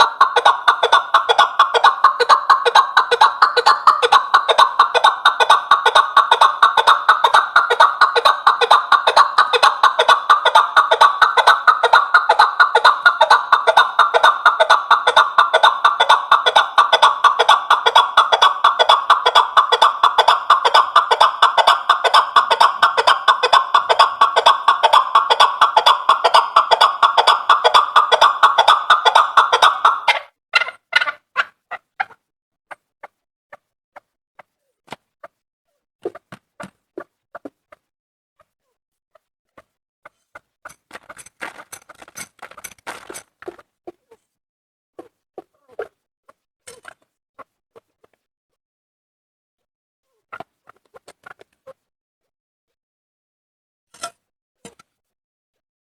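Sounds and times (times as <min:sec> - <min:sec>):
partridge clucking calls: 0:00.0 - 0:32.8.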